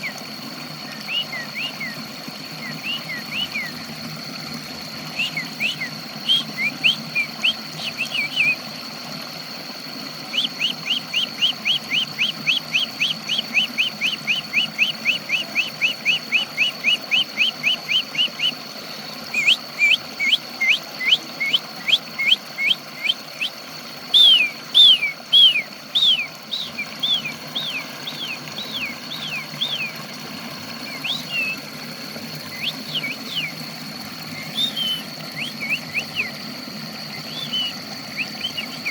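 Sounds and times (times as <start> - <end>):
songbird whistling: 0.8 - 2.0, 2.6 - 3.8, 5.1 - 8.6, 10.3 - 18.6, 19.3 - 30.0, 30.8 - 31.6, 32.5 - 33.7, 34.3 - 36.4, 37.1 - 38.9.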